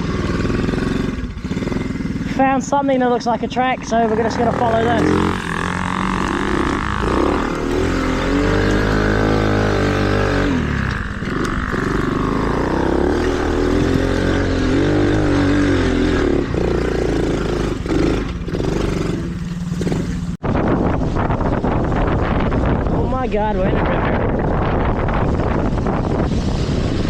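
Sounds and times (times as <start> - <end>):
mini bike engine revving: 0.0 - 20.4.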